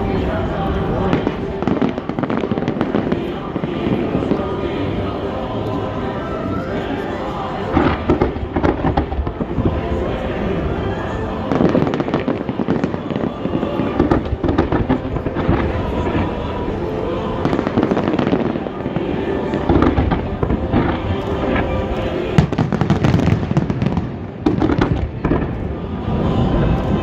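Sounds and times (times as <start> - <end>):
fireworks bangs and crackles: 0.7 - 4.4, 7.7 - 9.9, 11.5 - 16.8, 17.4 - 27.0.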